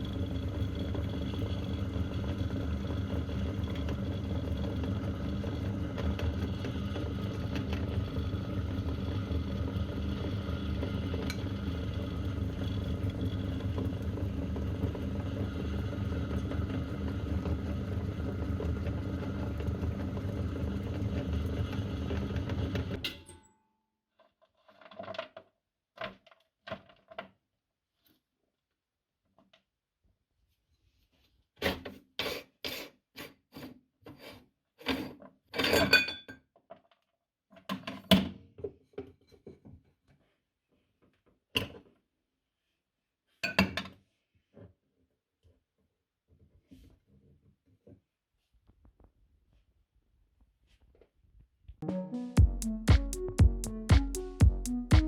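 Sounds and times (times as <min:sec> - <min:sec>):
meat grinder motor humming: 0:00.0 - 0:23.0.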